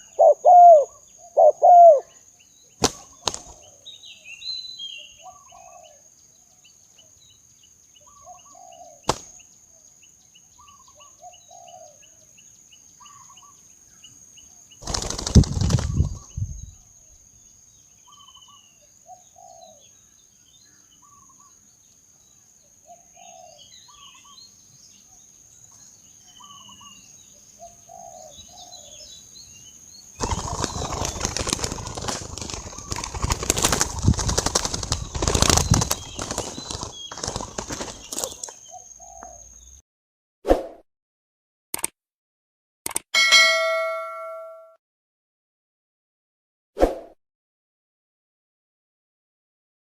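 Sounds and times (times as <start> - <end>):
doves cooing: 0.0 - 2.1, 30.2 - 39.4
wings flapping: 2.8 - 3.7, 9.1 - 9.4, 14.8 - 16.3, 30.2 - 38.6.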